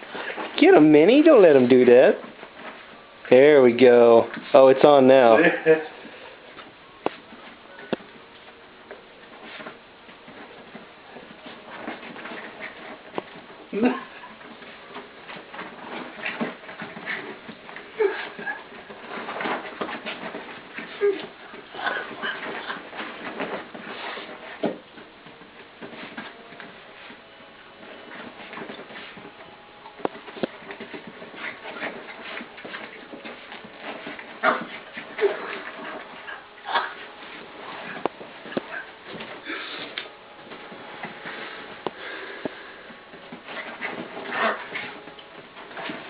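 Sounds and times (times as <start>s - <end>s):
puppies scuffling: 0.0s - 46.0s
paws and claws tapping on floor: 6.5s - 27.2s, 27.8s - 46.0s
puppies breathing roughly: 38.7s - 40.1s, 41.1s - 45.0s.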